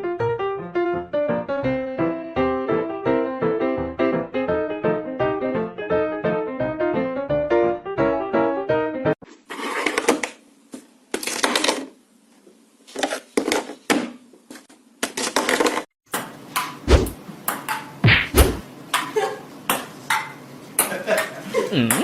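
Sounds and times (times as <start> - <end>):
deep thuds: 16.9 - 17.2, 18.0 - 18.6.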